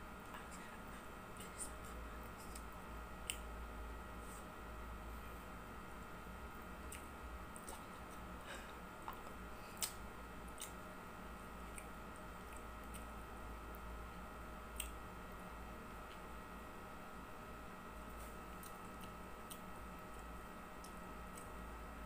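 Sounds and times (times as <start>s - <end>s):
steady low hum: 0.0s - 22.0s
small mouth clicks: 1.4s - 3.5s, 6.8s - 8.2s, 9.0s - 10.8s, 11.6s - 13.1s, 14.7s - 15.0s, 18.6s - 21.6s
person chewing: 6.8s - 10.8s, 11.6s - 13.1s, 14.7s - 15.0s, 18.5s - 21.5s.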